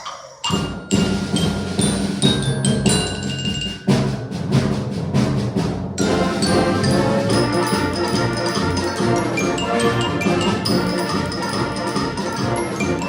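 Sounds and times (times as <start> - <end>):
concert band playing: 6.0 - 13.0.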